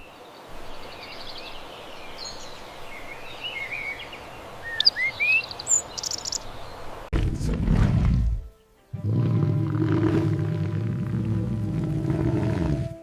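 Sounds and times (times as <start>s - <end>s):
songbird singing: 0.0s - 7.1s
steady outdoor hiss: 0.0s - 7.6s, 8.2s - 13.0s.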